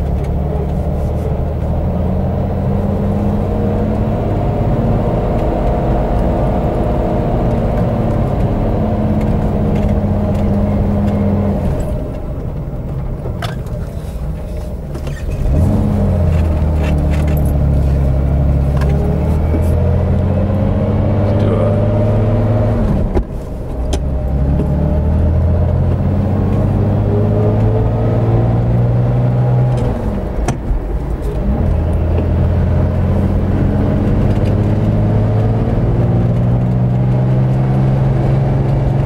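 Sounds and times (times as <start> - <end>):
car engine pulling away: 0.0 - 39.0.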